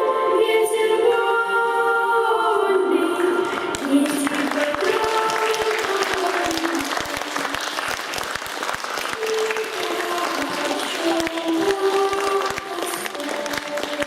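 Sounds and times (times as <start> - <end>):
group of voices singing: 0.0 - 7.6, 9.2 - 14.0
audience applauding: 3.3 - 14.0.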